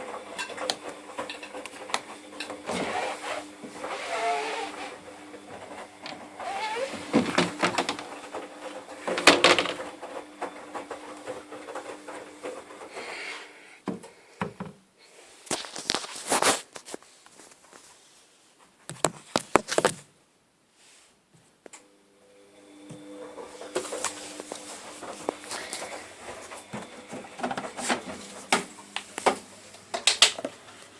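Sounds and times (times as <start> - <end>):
domestic machine humming: 0.0 - 13.8, 21.8 - 30.9.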